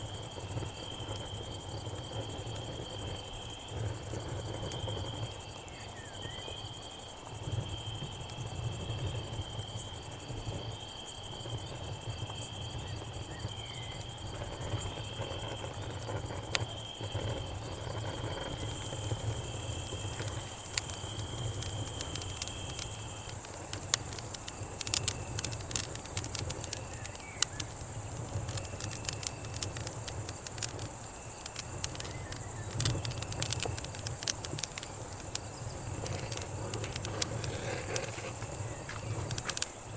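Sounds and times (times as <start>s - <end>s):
cicadas buzzing: 0.0s - 39.9s
cricket trilling: 0.0s - 39.9s
campfire crackling and popping: 14.0s - 39.9s.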